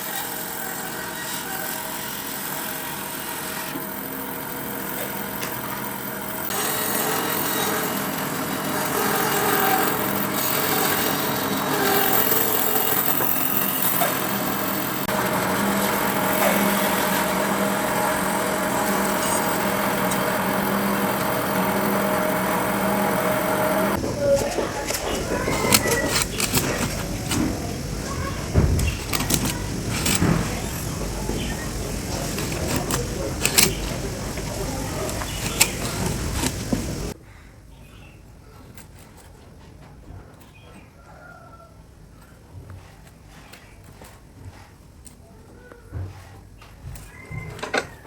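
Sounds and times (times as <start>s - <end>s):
power tool whining: 0.0s - 37.2s.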